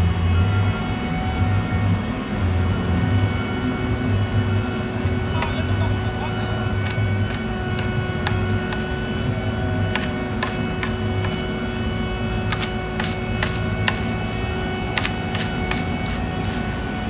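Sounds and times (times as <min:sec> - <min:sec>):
construction machine engine running: 0:00.0 - 0:17.0
sharp clicks and ticks: 0:09.9 - 0:11.4, 0:12.5 - 0:14.2, 0:14.9 - 0:16.6.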